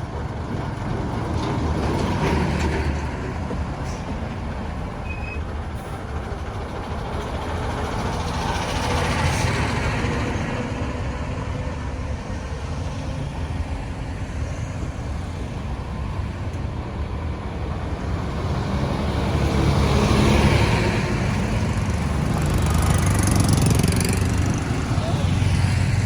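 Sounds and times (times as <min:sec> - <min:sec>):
road traffic rumble: 0:00.0 - 0:26.0
vehicle passing close by: 0:17.8 - 0:26.0.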